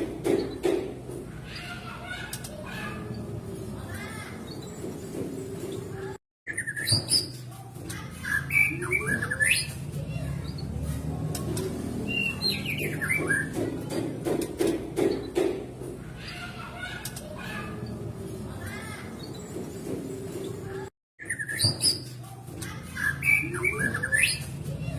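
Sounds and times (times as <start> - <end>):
bird whistling song: 6.5 - 7.4, 8.3 - 9.8, 12.0 - 13.5, 21.2 - 22.1, 23.0 - 24.5.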